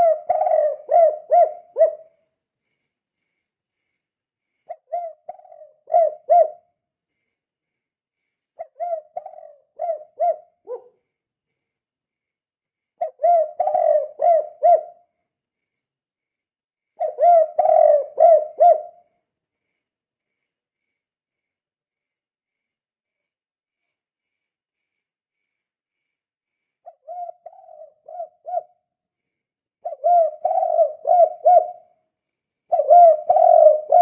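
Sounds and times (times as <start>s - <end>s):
dove cooing: 0.0s - 2.2s, 4.7s - 6.7s, 8.6s - 11.0s, 13.0s - 15.0s, 17.0s - 19.0s, 26.8s - 28.8s, 29.8s - 31.9s, 32.7s - 34.0s.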